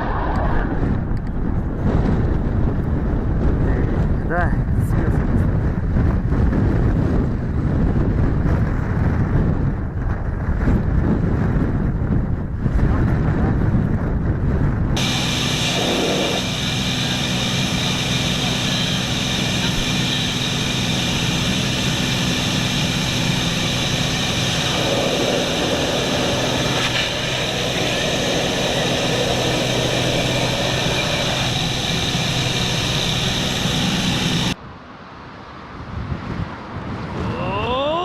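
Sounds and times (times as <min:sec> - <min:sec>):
noisy rush: 0:00.0 - 0:38.0
aircraft engine droning: 0:15.0 - 0:34.6
rising wavering pitched sound: 0:15.0 - 0:34.6.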